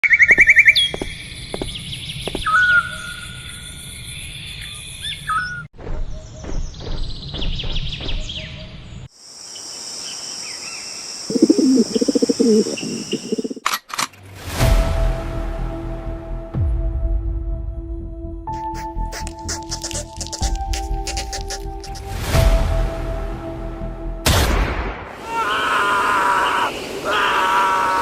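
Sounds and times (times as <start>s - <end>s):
birds chirping and trilling: 0.0s - 13.6s.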